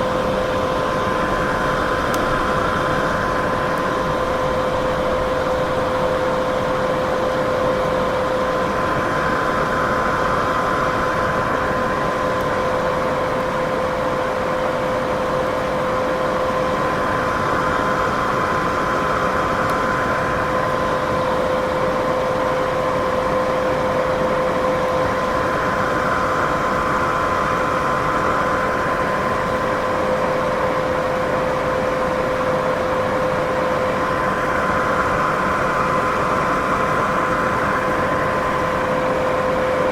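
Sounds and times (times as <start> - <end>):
white noise: 24.7 - 39.9.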